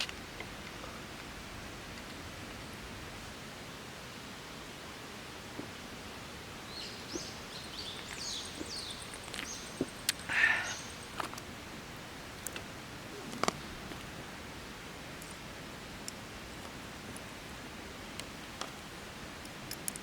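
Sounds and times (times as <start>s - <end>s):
outdoor hiss: 0.0s - 20.0s
bird chirps: 6.7s - 11.2s.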